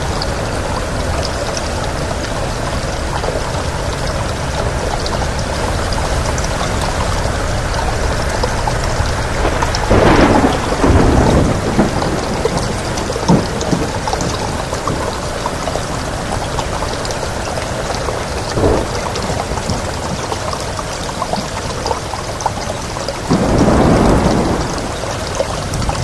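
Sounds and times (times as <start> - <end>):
heavy rain: 0.0 - 26.0
rolling thunder: 3.1 - 17.5, 18.4 - 20.6, 23.3 - 26.0
sharp thunder crack: 9.3 - 14.5, 23.3 - 26.0.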